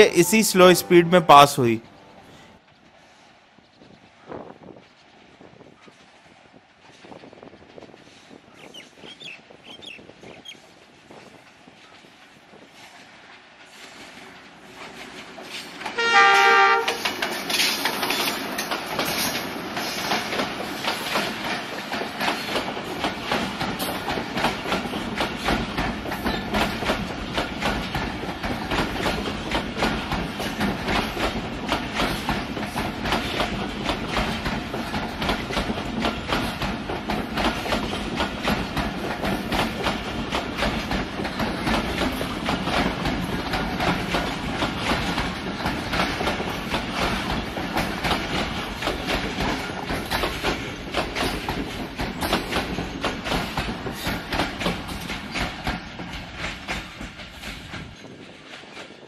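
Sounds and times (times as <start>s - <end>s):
train wheels clickety-clack: 2.7s - 59.0s
train horn: 16.0s - 17.0s.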